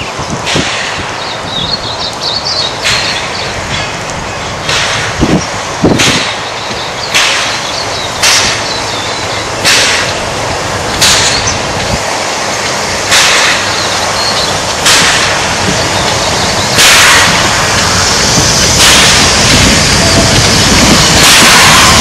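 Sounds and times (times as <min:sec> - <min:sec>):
steam locomotive chuffing: 0:00.2 - 0:22.0
hissing exhaust puffs: 0:02.8 - 0:22.0.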